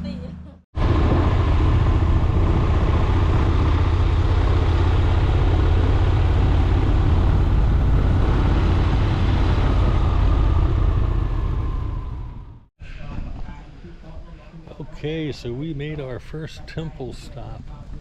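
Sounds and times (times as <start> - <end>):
motorcycle engine running: 0.8 - 12.7
wind and road noise: 0.8 - 14.3.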